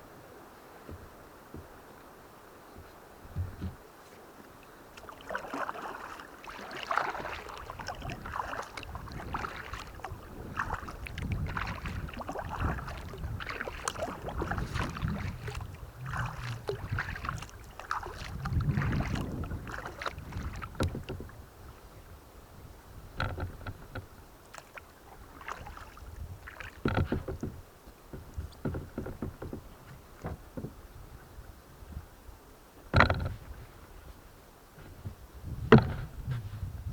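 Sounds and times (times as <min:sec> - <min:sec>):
paddle strokes splashing: 0:00.0 - 0:32.0.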